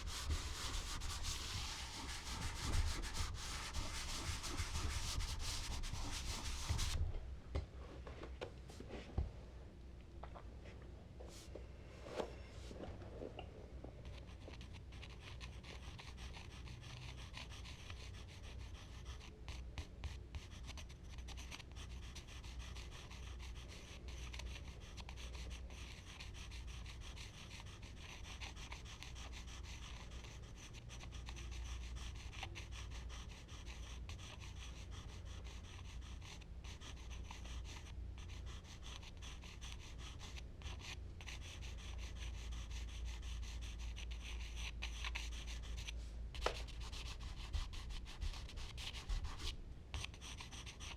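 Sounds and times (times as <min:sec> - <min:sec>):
charcoal scratching on paper: 0:00.0 - 0:07.0, 0:14.0 - 0:50.9
low steady hum: 0:00.0 - 0:28.4.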